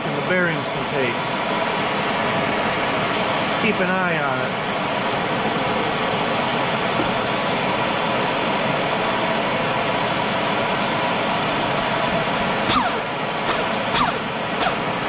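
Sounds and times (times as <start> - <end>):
pneumatic grinder hissing: 10.6 - 15.0.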